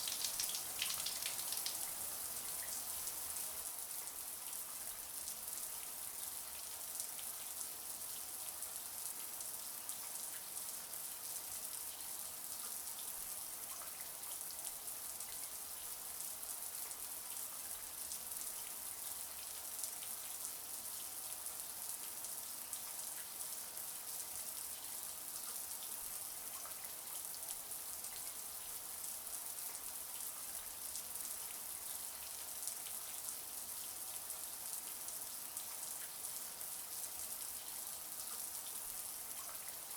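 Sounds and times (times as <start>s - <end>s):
shower water spraying: 0.0s - 1.9s.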